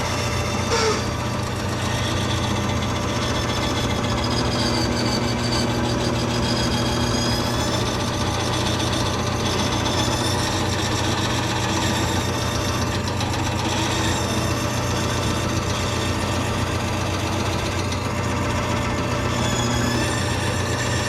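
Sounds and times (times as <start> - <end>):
bandsaw motor hum: 0.0 - 21.0
blade whine in wood: 0.0 - 21.0.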